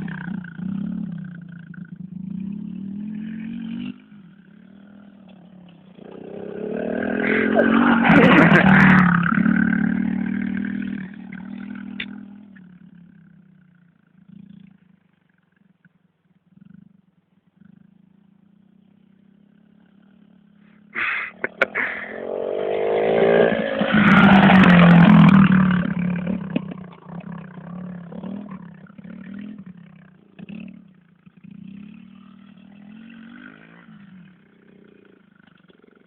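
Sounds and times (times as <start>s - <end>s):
motorbike engine revving: 4.6s - 12.5s, 20.9s - 36.0s.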